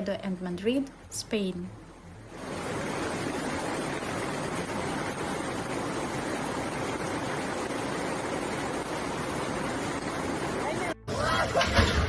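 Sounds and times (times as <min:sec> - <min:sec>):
floodwater rushing: 0:02.3 - 0:11.0.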